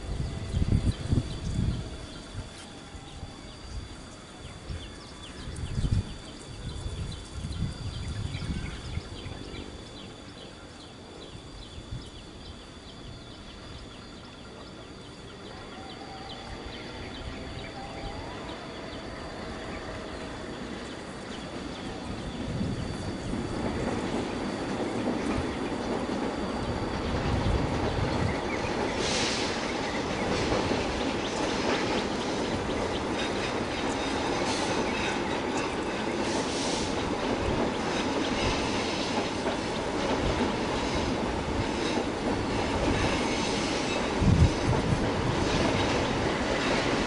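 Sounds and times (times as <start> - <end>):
diesel train rumble: 0.0 - 47.0.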